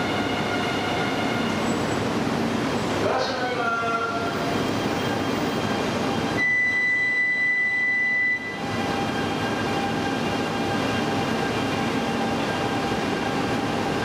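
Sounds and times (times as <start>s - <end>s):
train running noise: 0.0s - 14.0s
high steady tone: 4.8s - 8.6s.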